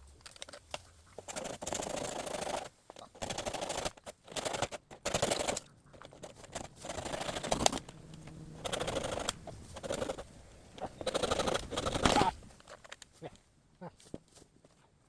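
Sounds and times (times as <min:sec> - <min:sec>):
hand saw cutting bamboo: 0:01.2 - 0:07.9.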